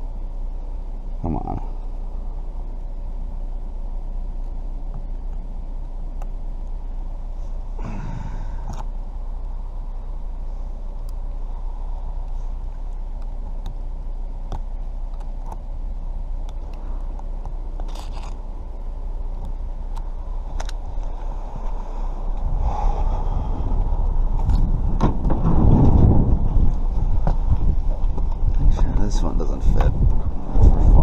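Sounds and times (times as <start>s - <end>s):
vehicle engine idling: 0.0s - 31.0s
person muttering: 1.2s - 1.8s.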